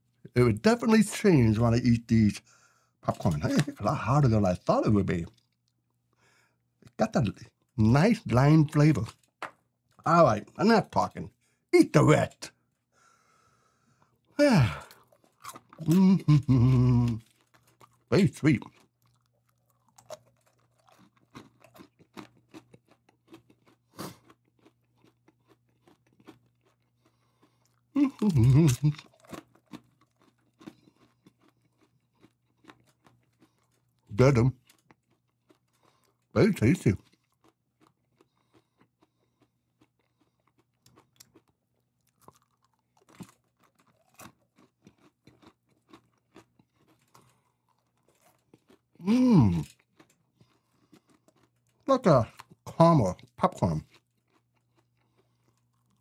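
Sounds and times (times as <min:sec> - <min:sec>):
person chewing crunchy popcorn: 0:03.0 - 0:05.9, 0:14.0 - 0:56.0
person's short voiced sound: 0:03.1 - 0:04.1, 0:14.4 - 0:14.9, 0:15.8 - 0:17.2, 0:28.0 - 0:29.0, 0:49.0 - 0:49.7.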